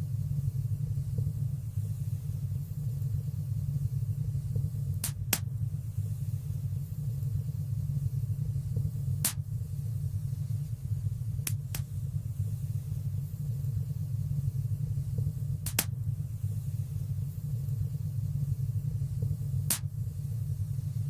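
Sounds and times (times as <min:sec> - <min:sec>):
flames rumbling in fireplace: 0:00.0 - 0:21.0
sharp crackling pops: 0:04.9 - 0:05.7, 0:09.2 - 0:09.6, 0:11.4 - 0:12.0, 0:15.6 - 0:16.1, 0:19.6 - 0:20.0.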